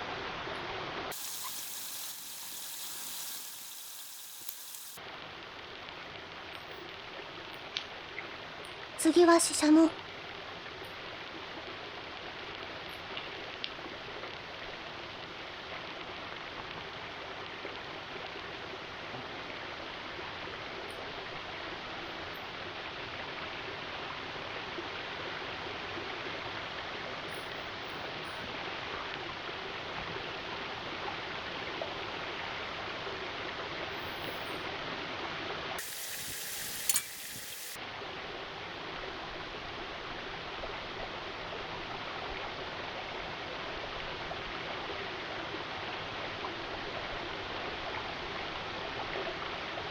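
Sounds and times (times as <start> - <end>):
bright hiss: 1.1 - 5.0, 35.8 - 37.8
running water rushing: 1.1 - 5.0, 35.8 - 37.8.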